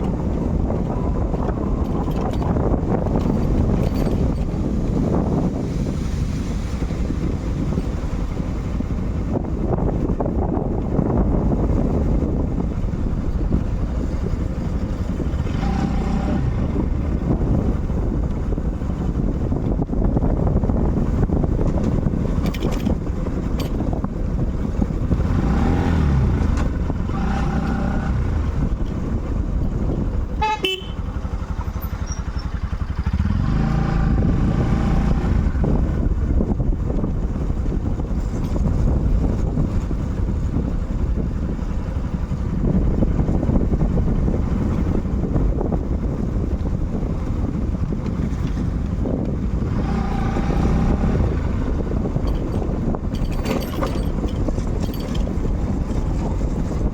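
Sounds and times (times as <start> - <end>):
motorcycle engine rumble: 0.0 - 56.9
wind on microphone: 0.0 - 56.9
vehicle horn short beeps: 30.4 - 31.2.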